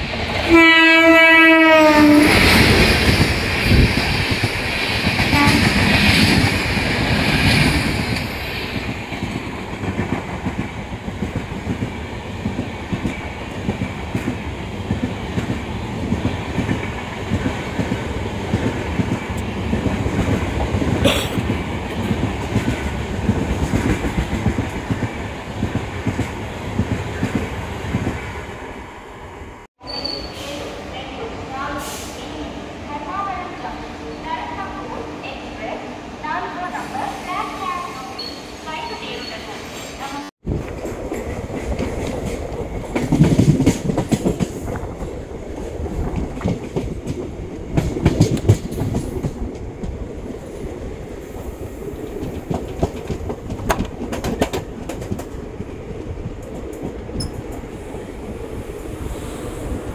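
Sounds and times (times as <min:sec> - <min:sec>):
train horn blast: 0:00.5 - 0:02.4, 0:05.3 - 0:05.8
train wheels clickety-clack: 0:01.9 - 0:28.2, 0:40.5 - 0:50.0, 0:52.0 - 0:57.7.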